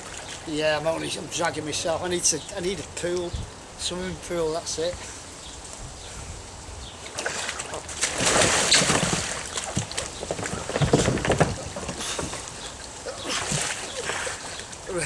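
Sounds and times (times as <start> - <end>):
water splashing around kayak: 0.0 - 0.6, 7.0 - 15.0
sharp water slaps: 7.0 - 14.9.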